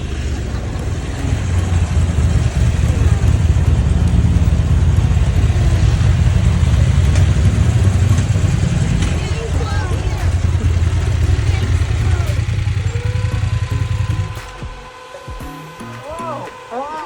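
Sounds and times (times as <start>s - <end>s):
motorcycle engine rumbling: 0.0s - 17.0s.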